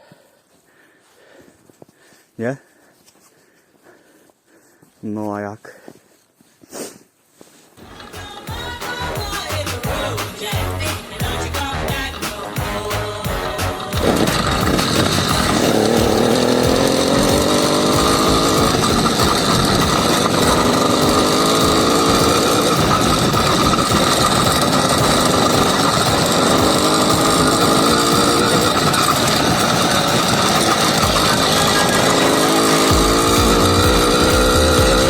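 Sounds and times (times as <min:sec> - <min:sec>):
small two-stroke engine revving: 0:07.8 - 0:35.0.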